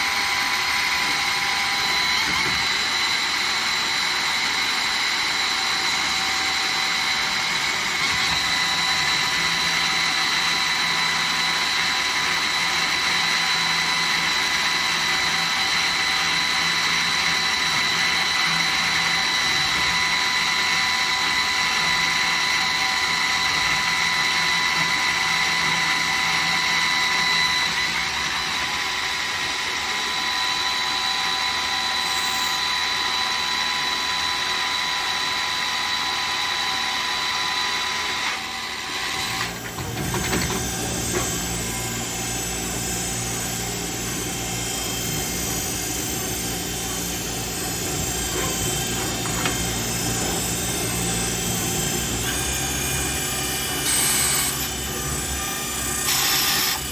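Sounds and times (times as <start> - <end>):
lathe running with hiss: 0.0 - 56.9
high whines: 30.1 - 56.8.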